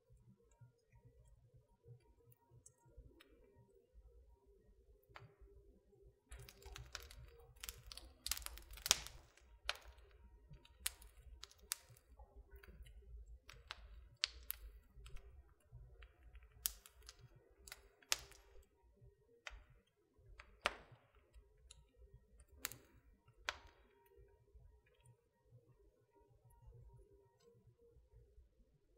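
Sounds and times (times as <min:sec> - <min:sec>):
low rumble of burning: 0:01.9 - 0:24.9
wood fire crackling: 0:06.2 - 0:25.1.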